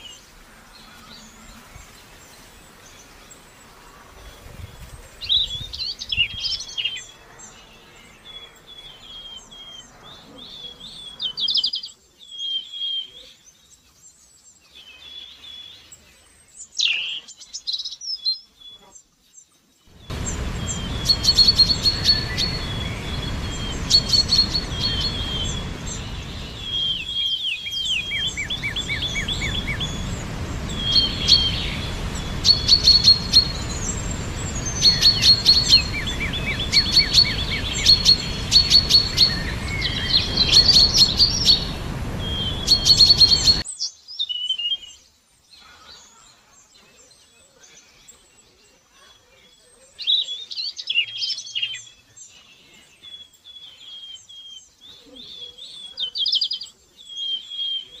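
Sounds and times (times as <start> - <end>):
songbirds singing and chirping: 0.0 - 58.0
low background rumble: 19.9 - 43.6.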